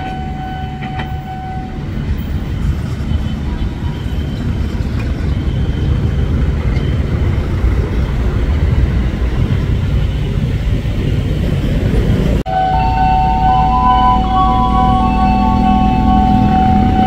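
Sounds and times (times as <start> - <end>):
train wheels rumbling on rails: 0.0 - 12.4
steady high tones: 12.5 - 17.0.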